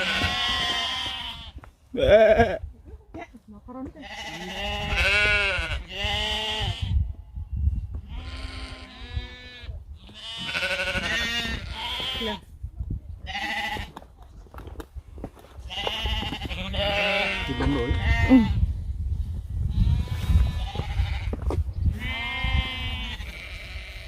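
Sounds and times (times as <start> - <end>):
sheep bleating: 0.0 - 2.7, 4.0 - 7.0, 8.1 - 12.4, 13.3 - 13.9, 15.7 - 18.6, 22.0 - 24.0.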